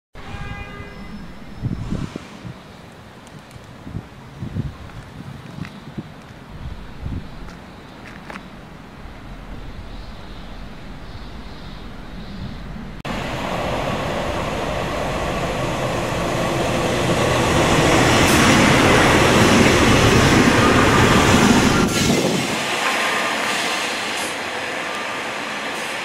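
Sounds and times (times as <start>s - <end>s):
diesel train passing: 6.4s - 26.0s.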